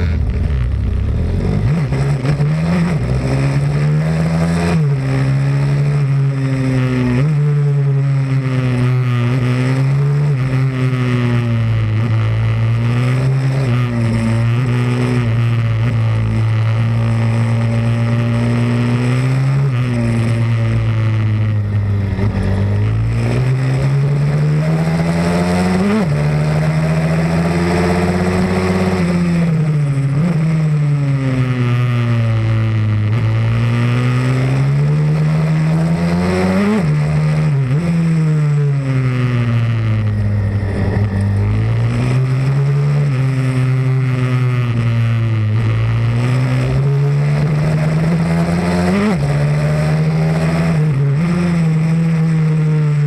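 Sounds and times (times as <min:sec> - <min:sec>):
pit bike engine revving: 0:00.0 - 0:53.0.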